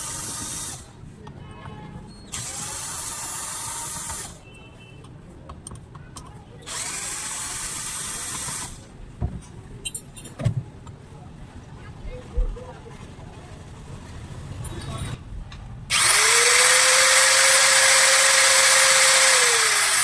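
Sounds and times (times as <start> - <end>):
angle grinder whirring: 15.9 - 20.0.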